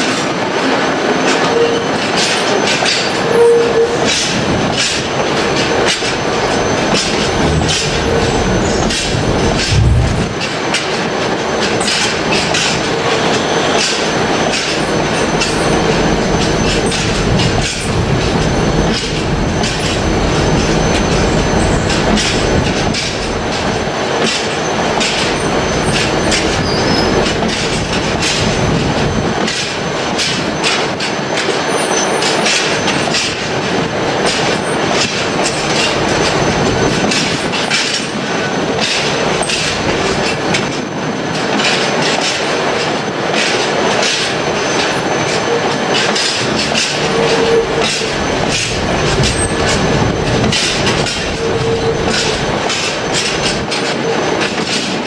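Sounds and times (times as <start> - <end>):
train wheels clattering over rail joints: 0.0 - 55.0
light wheel squeal: 1.2 - 9.3, 11.6 - 23.7, 24.6 - 28.4, 31.5 - 33.0, 44.1 - 55.0
deep rumble: 5.4 - 10.6, 14.2 - 23.9, 46.4 - 53.6.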